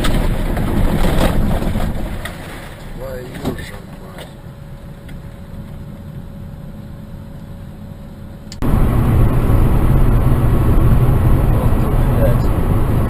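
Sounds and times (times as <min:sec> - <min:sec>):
vehicle road rumble: 0:00.0 - 0:13.0
faint hum: 0:02.1 - 0:13.0.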